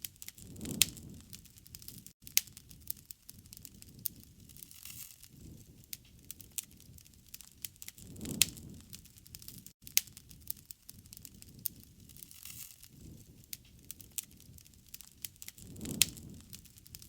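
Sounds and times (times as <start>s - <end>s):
low rumble of burning: 0.0s - 17.0s
wood fire crackling: 0.0s - 17.0s.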